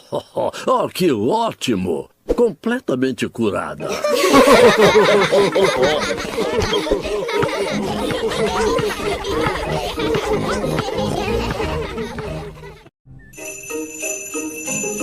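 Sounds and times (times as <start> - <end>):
cartoon voices laughing: 3.8 - 12.9.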